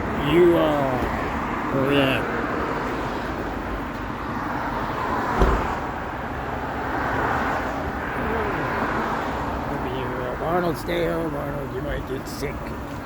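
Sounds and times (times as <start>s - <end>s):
road traffic noise: 0.0s - 13.0s
thump: 5.3s - 5.8s.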